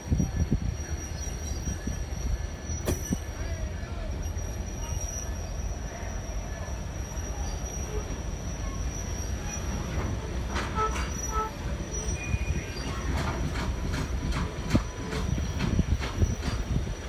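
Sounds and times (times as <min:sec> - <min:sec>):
train rumbling on rails: 0:00.0 - 0:17.0
faint wheel squeals: 0:00.1 - 0:13.9
wheels clicking on track: 0:09.4 - 0:17.0.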